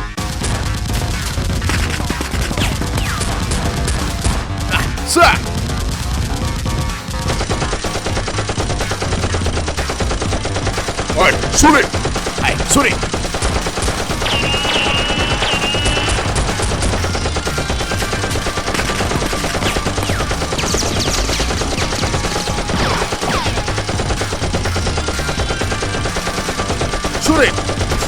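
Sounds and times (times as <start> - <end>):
rapid automatic gunfire effects: 0.0 - 28.0.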